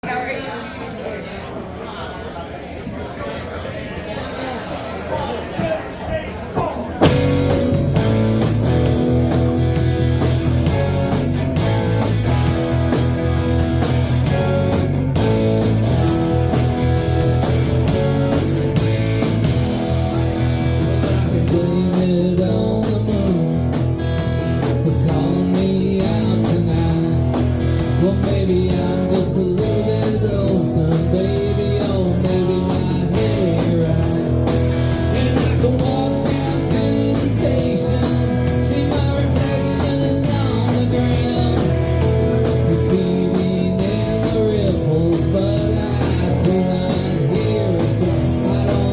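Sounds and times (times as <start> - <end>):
rock band playing: 6.9 - 48.9
person singing: 15.2 - 48.9.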